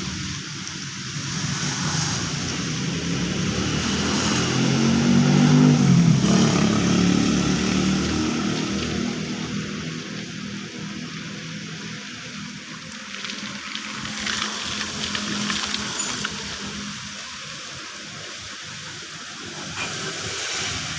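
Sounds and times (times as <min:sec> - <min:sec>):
heavy rain hissing: 0:00.0 - 0:20.9
vehicle engine drone passing: 0:01.1 - 0:11.7, 0:19.3 - 0:20.9.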